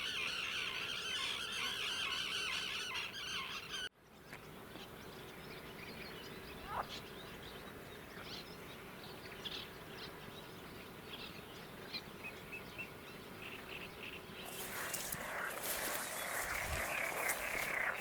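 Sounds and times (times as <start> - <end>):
wild birds chirping: 0.0 - 18.0
faint insect hum: 14.4 - 18.0
hiss: 14.5 - 17.6.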